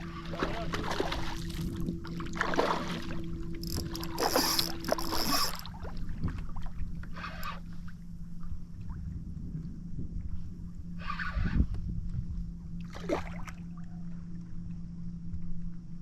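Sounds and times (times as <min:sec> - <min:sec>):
water splashing around kayak: 0:00.0 - 0:09.1
steady low hum: 0:00.0 - 0:16.0.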